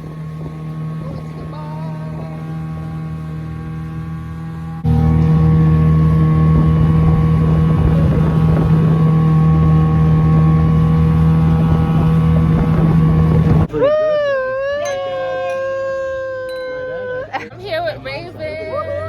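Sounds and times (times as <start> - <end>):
wind on microphone: 0.0 - 2.6, 6.0 - 13.8
boat engine running: 0.0 - 19.0.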